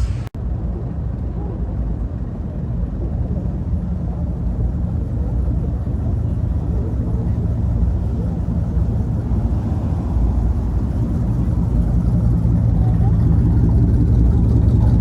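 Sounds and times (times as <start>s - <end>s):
car engines rumbling: 0.0s - 15.0s.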